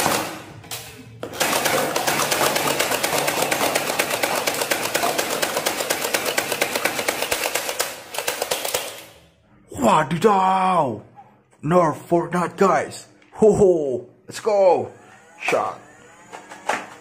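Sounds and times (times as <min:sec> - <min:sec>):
toy machine gun rattling: 0:01.4 - 0:09.2.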